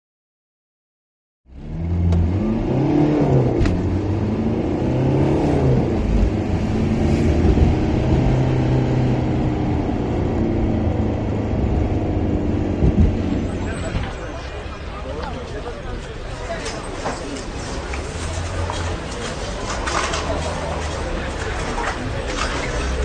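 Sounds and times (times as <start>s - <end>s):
sports car engine revving: 1.5s - 13.9s.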